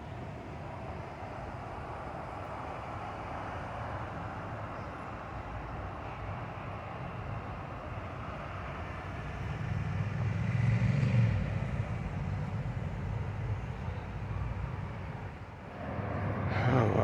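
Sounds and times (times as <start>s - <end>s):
cars passing: 10.0s - 17.0s.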